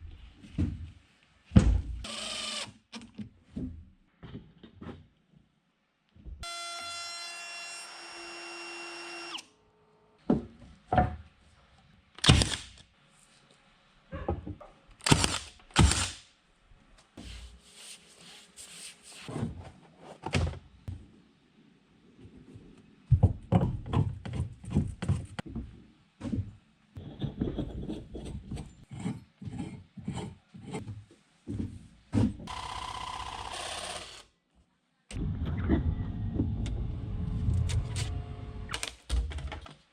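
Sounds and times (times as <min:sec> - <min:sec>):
power tool whine: 0:32.5 - 0:34.2.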